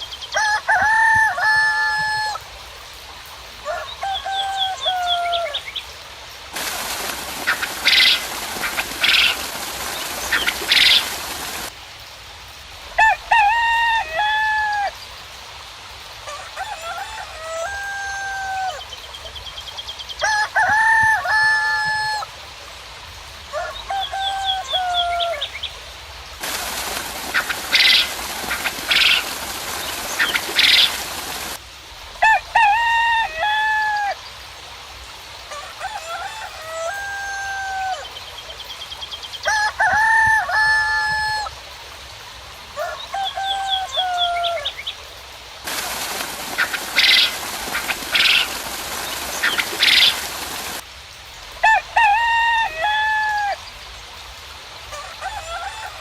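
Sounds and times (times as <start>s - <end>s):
rain-like hiss: 0.0s - 56.0s
roosters crowing: 0.3s - 2.4s, 3.6s - 5.7s, 6.6s - 11.7s, 13.0s - 15.0s, 16.2s - 18.8s, 20.2s - 22.3s, 23.5s - 25.5s, 26.4s - 31.6s, 32.2s - 34.2s, 35.5s - 38.2s, 39.4s - 41.5s, 42.8s - 44.8s, 45.7s - 50.8s, 51.6s - 53.6s, 54.9s - 56.0s
hens clucking: 6.6s - 11.7s, 26.4s - 31.6s, 45.7s - 50.8s
small birds chirping: 6.6s - 11.7s, 26.4s - 31.6s, 45.7s - 50.8s.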